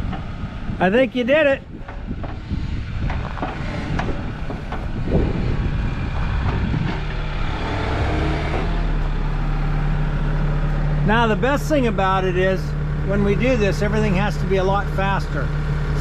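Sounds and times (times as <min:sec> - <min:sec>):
excavator diesel engine running: 0:00.0 - 0:16.0
sharp knocks and clanks: 0:01.7 - 0:09.1.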